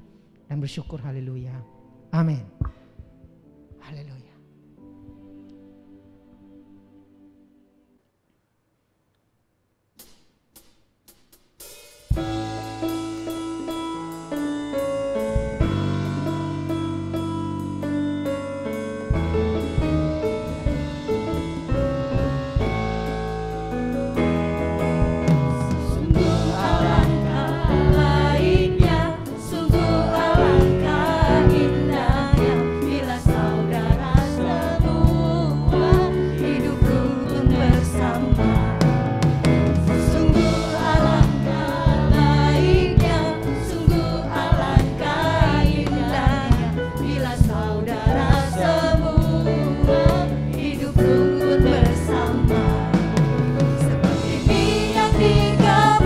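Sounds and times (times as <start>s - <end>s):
band with steady beat: 10.0s - 56.0s
choir singing gospel song: 15.3s - 56.0s.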